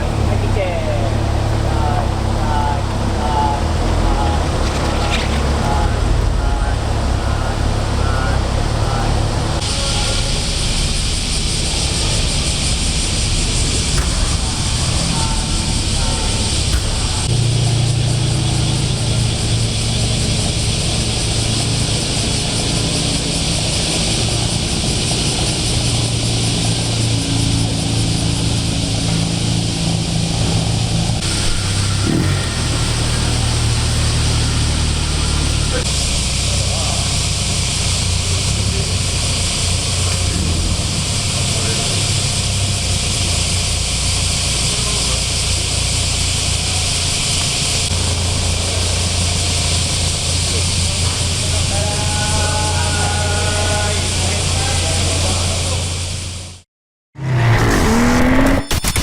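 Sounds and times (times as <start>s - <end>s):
car engine running: 0.0s - 59.0s
steady hiss: 31.2s - 55.5s.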